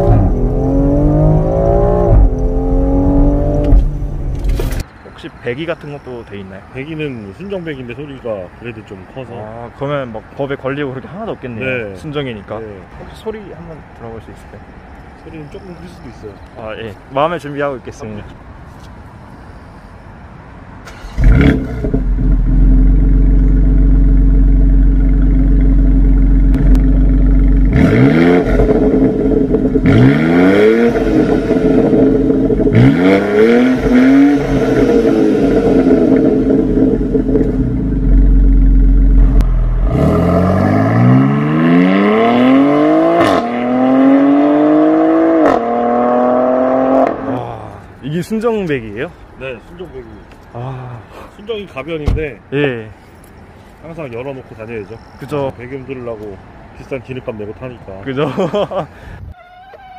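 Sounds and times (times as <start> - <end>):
car accelerating hard: 0.0 - 4.8, 20.9 - 47.6
engine revving: 0.0 - 4.8, 20.9 - 47.6
car engine starting and idling: 0.0 - 4.9, 20.8 - 43.8.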